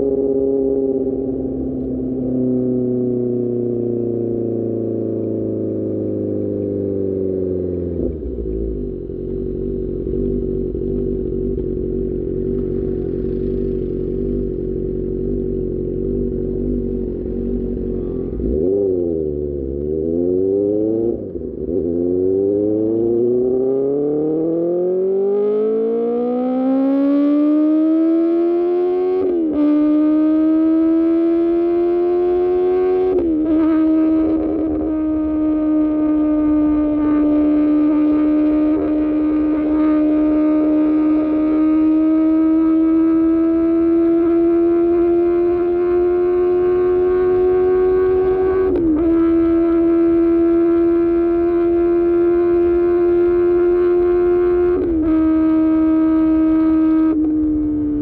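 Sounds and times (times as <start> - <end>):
motorcycle engine: 0.0 - 58.0
motorcycle throttle blips: 4.6 - 20.1, 28.8 - 58.0.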